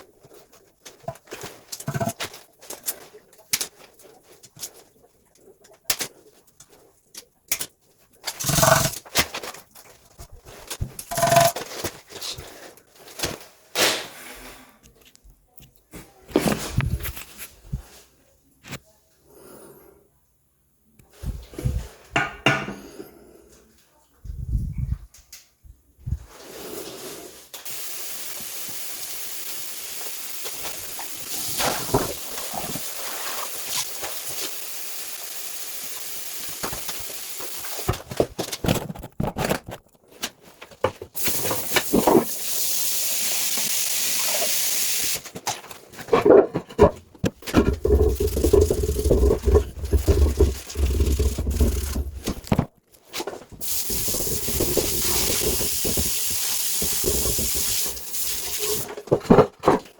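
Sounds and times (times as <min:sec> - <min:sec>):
steady hissing: 0:26.8 - 0:38.0, 0:41.2 - 0:45.2, 0:47.7 - 0:52.5, 0:53.6 - 0:58.9.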